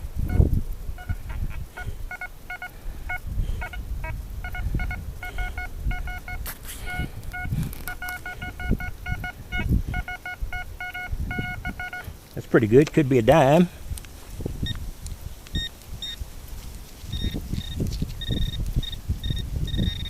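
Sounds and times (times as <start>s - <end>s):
metal detector beeping: 0.2s - 12.2s, 15.6s - 16.2s, 17.1s - 20.0s.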